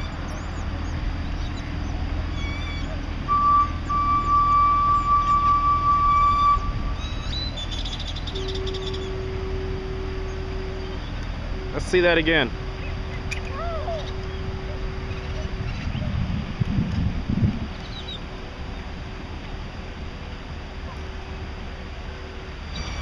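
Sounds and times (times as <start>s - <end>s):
small birds chirping: 0.0s - 3.1s, 7.0s - 9.2s
constant low rumble: 0.0s - 23.0s
lower steady tone: 2.2s - 17.6s
steady high tone: 8.2s - 16.0s.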